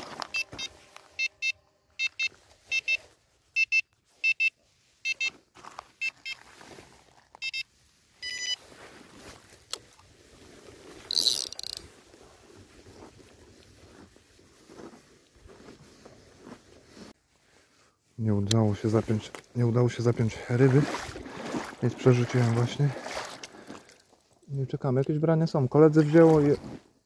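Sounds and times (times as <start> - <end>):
bite alarm beeping: 0.0 - 3.0, 3.6 - 5.3, 7.4 - 7.6, 8.2 - 8.6
higher beep pattern: 0.0 - 3.0, 3.6 - 4.5, 8.2 - 8.6.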